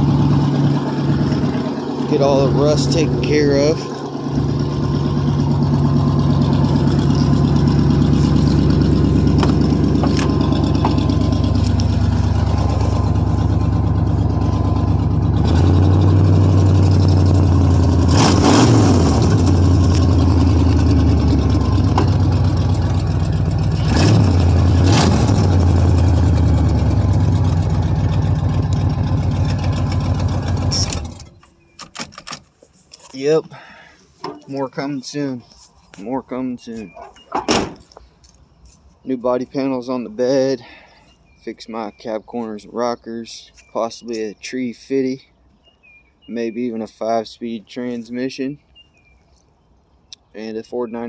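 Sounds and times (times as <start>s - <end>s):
engine revving: 0.0s - 31.3s
pickup engine idling: 0.0s - 31.4s.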